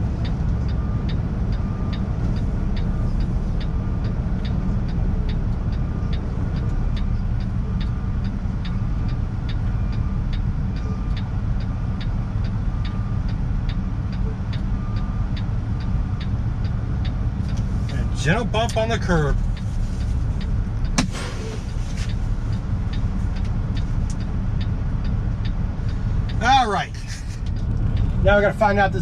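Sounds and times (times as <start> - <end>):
flasher relay ticking: 0.0 - 21.1, 21.7 - 29.0
diesel truck engine running: 0.0 - 29.0.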